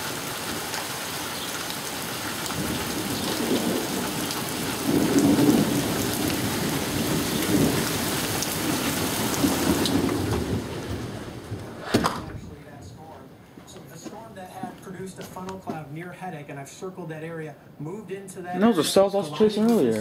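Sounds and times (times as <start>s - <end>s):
heavy rain pattering: 0.0s - 16.3s
thunder rumbling: 2.3s - 13.1s.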